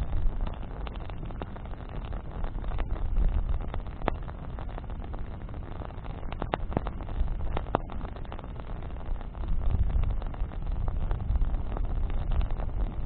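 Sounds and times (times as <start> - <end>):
campfire crackling: 0.0 - 13.0
sharp fire pops: 0.0 - 13.0
steady low rumble: 0.0 - 13.0.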